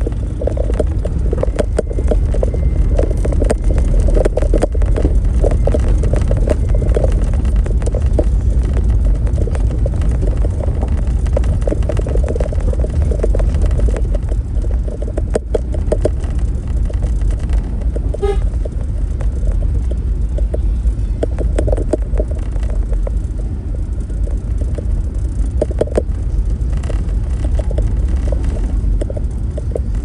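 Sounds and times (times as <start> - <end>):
vehicle rumbling: 0.0 - 30.0
horn toot: 18.2 - 18.5.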